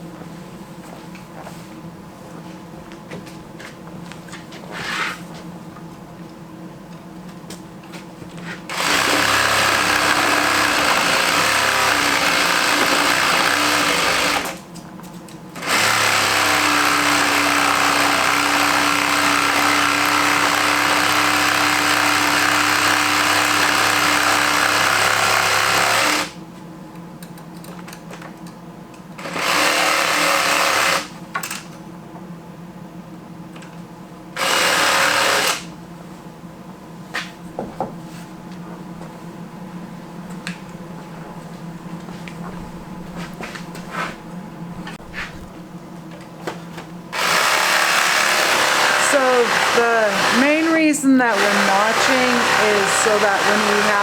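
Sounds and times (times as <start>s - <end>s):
electric saw cutting wood: 8.7s - 14.6s, 15.6s - 26.4s, 29.2s - 31.1s, 34.4s - 35.7s, 47.2s - 54.0s.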